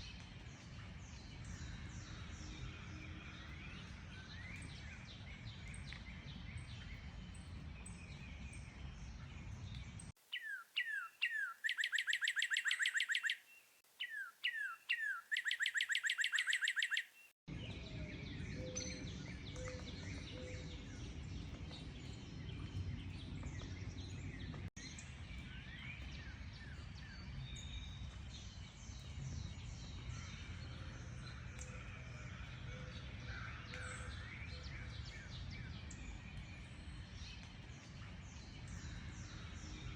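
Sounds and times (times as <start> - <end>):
wild birds chirping: 10.2 - 17.4
songbird whistles and trill: 10.3 - 17.3.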